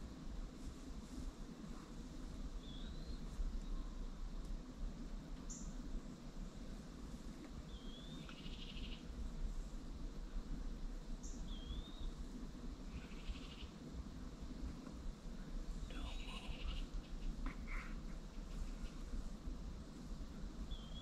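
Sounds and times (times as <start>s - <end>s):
low steady rumble: 0.0s - 21.0s
songbird singing: 2.4s - 4.3s, 5.3s - 5.9s, 7.4s - 9.3s, 11.0s - 14.0s, 14.7s - 19.2s, 20.2s - 21.0s.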